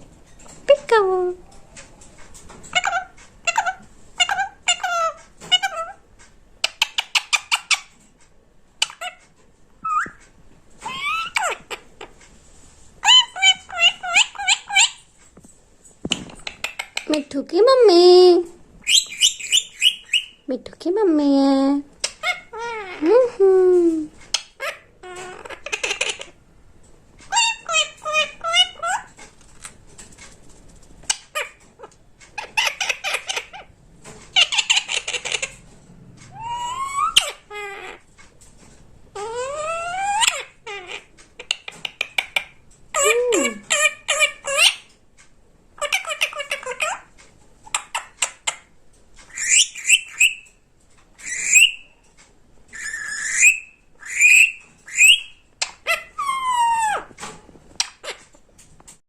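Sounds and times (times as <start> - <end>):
parrot chattering and squeaking: 2.4 - 6.0, 6.6 - 8.1, 8.8 - 10.2, 10.8 - 12.2, 13.0 - 15.2, 16.1 - 17.4, 18.8 - 20.5, 21.9 - 23.3, 24.1 - 26.4, 27.3 - 29.8, 31.0 - 38.1, 39.1 - 45.0, 45.8 - 50.6, 51.2 - 52.0, 52.7 - 58.4.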